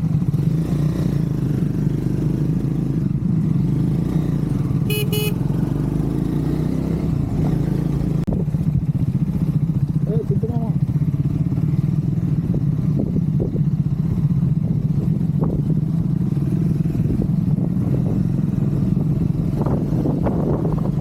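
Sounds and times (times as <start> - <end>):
motorcycle engine running: 0.0 - 21.0
horn beeping: 4.9 - 5.5.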